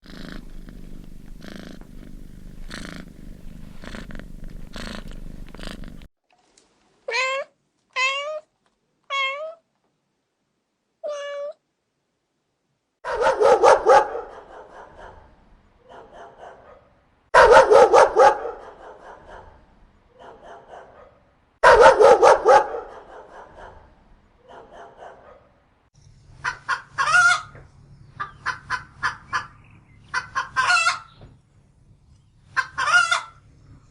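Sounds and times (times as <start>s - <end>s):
cat purring: 0.0s - 6.1s
cat meowing: 7.1s - 8.5s, 9.1s - 9.6s, 11.0s - 11.6s.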